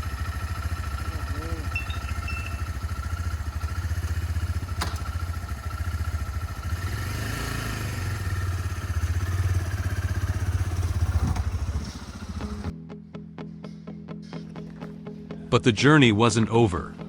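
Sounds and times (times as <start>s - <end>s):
motorcycle engine running: 0.0s - 12.7s
sharp click: 4.8s - 5.1s.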